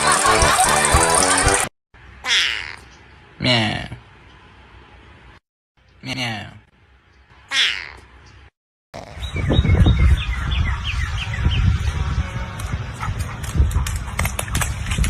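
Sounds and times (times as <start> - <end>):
bird chirping: 7.0 - 11.8.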